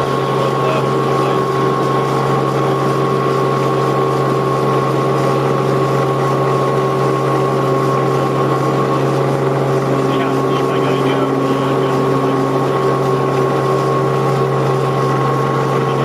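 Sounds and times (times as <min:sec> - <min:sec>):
helicopter engine and rotor drone: 0:00.0 - 0:16.0
high whine: 0:00.0 - 0:16.0.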